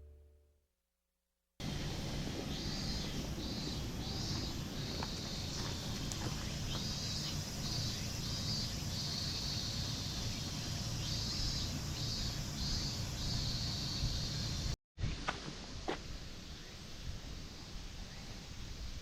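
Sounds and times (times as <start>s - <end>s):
insects singing: 1.6s - 14.8s
steady low rumble: 1.6s - 14.8s.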